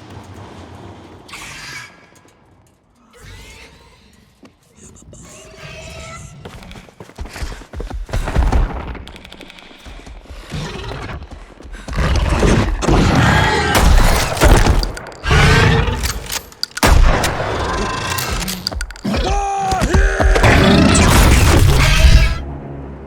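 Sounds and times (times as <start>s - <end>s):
tense music: 8.2s - 23.0s
heavy thuds and crashes: 12.8s - 22.4s
rapid clicking: 13.8s - 21.1s.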